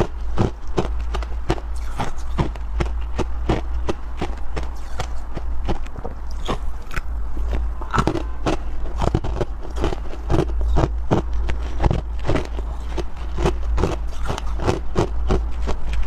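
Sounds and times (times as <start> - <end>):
ice being bitten and chewed: 0.0 - 16.0
low steady hum: 0.0 - 16.0.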